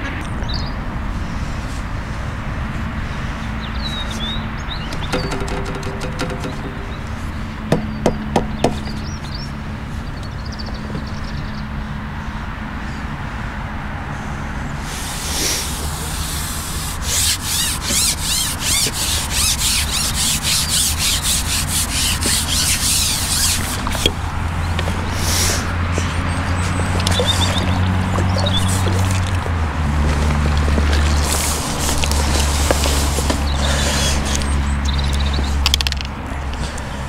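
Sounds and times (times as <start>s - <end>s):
rhythmic scraping: 4.9s - 8.8s, 16.6s - 24.0s.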